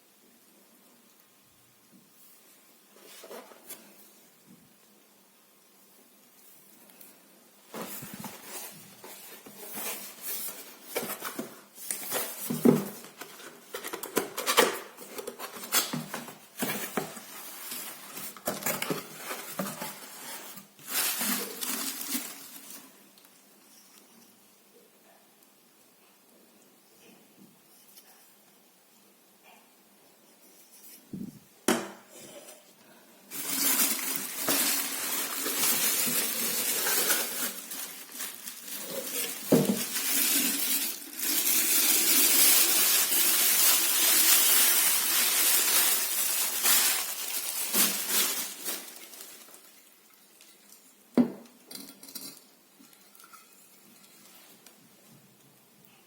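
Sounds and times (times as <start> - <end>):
packaging rustling and crinkling: 6.8 - 23.3, 33.3 - 50.9.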